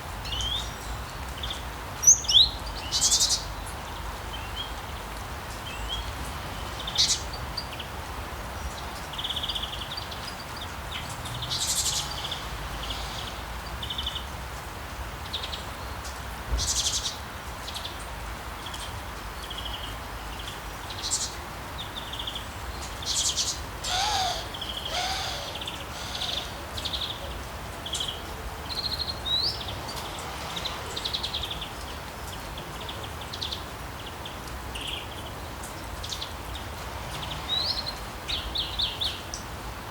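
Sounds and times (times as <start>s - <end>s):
rain hiss: 0.0s - 39.9s
birds chirping: 20.9s - 29.9s.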